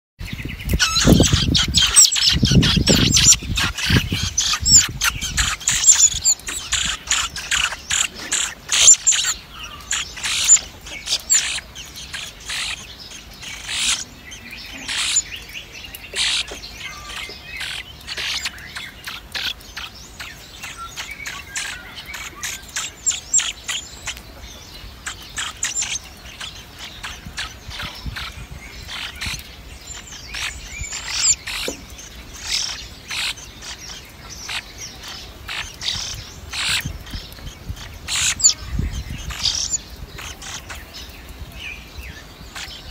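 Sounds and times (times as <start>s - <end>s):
high bird chirps: 0.2s - 42.9s.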